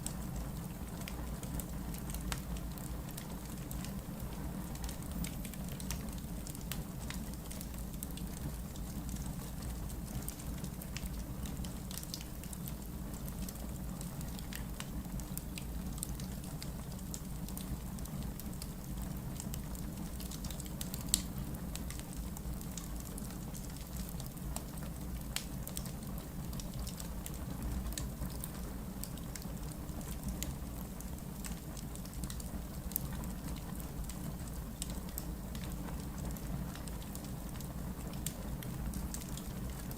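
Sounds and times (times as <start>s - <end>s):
fire crackling: 0.0s - 39.9s
low fire rumble: 0.0s - 39.9s.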